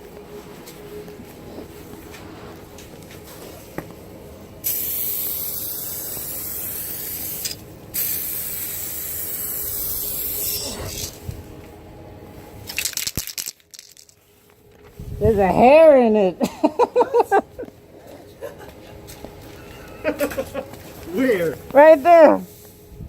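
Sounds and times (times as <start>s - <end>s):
aerosol can spraying: 4.6s - 11.2s.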